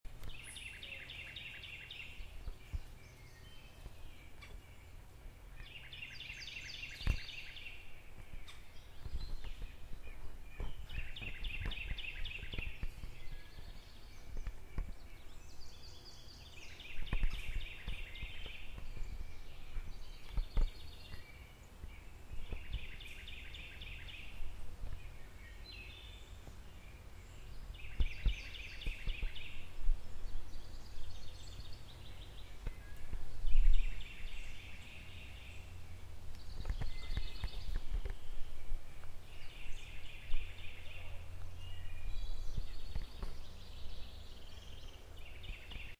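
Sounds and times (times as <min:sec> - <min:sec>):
bird singing: 0:00.1 - 0:45.9
steady low rumble: 0:01.4 - 0:45.9.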